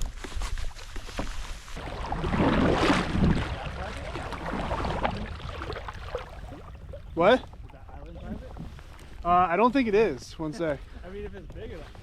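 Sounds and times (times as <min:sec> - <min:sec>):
quiet water sounds: 0:00.2 - 0:12.0
paddle splashing through water: 0:01.1 - 0:09.5.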